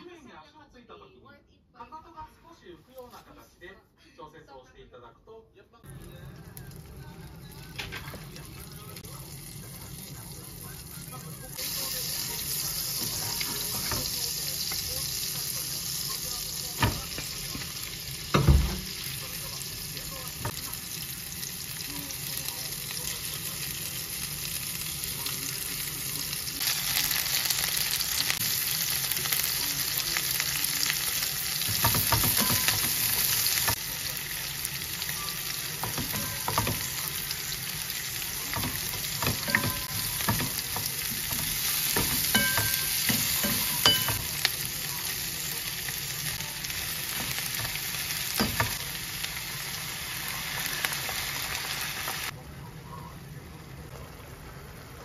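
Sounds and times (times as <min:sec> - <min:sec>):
food sizzling in a frying pan: 0:05.8 - 0:55.0
utensils tapping and scraping a pan: 0:11.6 - 0:15.0, 0:16.7 - 0:19.1, 0:31.5 - 0:33.9, 0:35.5 - 0:37.5, 0:38.2 - 0:44.6, 0:46.8 - 0:48.9.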